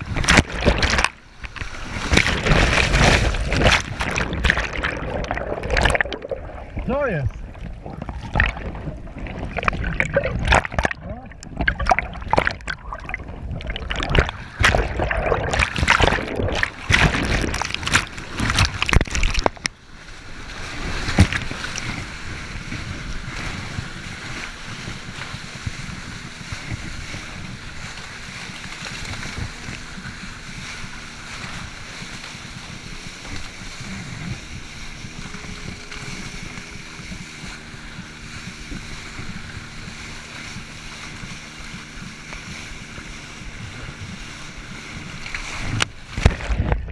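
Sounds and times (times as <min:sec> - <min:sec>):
jet ski engine humming: 0:00.0 - 0:46.9
water splashing and rushing: 0:00.0 - 0:46.9.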